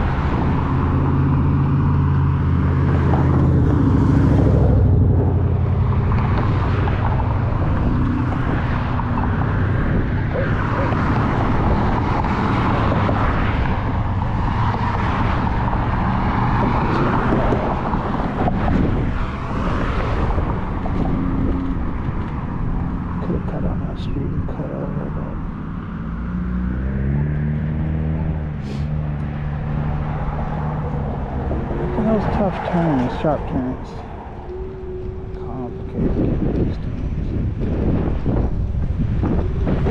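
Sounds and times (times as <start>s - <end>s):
electric scooter riding noise: 0.0s - 39.9s
wind rushing on microphone: 0.0s - 39.9s.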